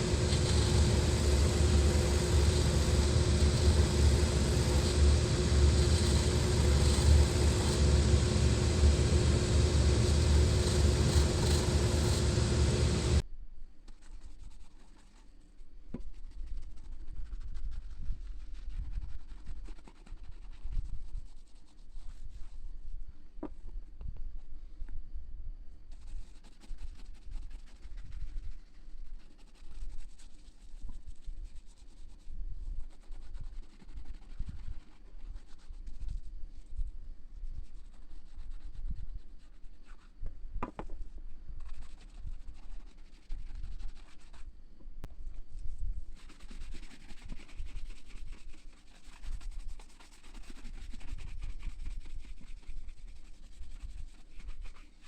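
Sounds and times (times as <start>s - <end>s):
scraping and rubbing on boot heel: 0.0s - 13.2s, 25.9s - 40.1s, 41.6s - 44.5s, 46.1s - 55.0s.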